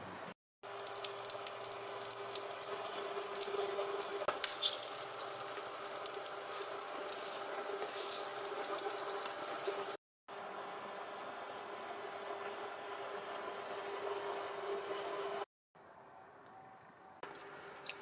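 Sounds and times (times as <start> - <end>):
food sizzling in hot oil: 0.6 - 10.0.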